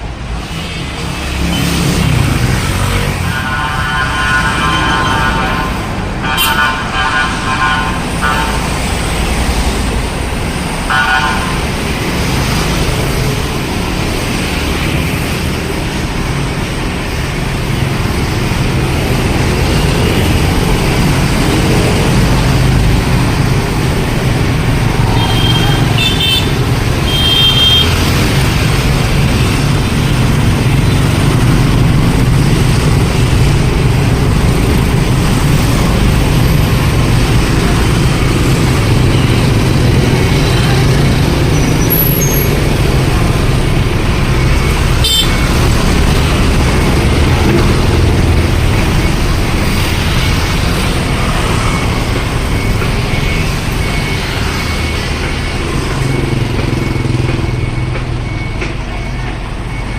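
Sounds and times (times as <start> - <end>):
street traffic rumble: 0.0 - 59.9
fire truck engine running: 15.8 - 59.9.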